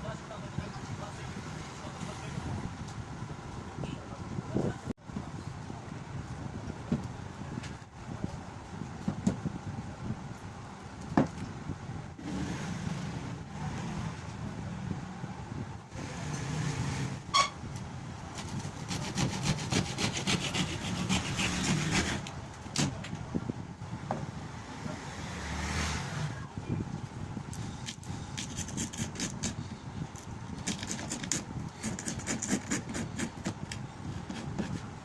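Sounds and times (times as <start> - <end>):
hand tool scraping wood: 18.4 - 22.3, 28.4 - 29.6, 30.6 - 34.9.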